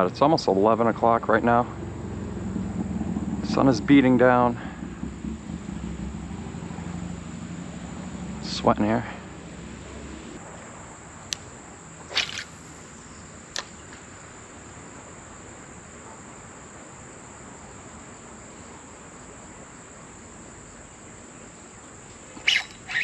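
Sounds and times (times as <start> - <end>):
insects buzzing: 0.0 - 23.0
fishing rod swish: 12.1 - 12.9, 22.4 - 23.0
flowing river water: 12.1 - 13.0.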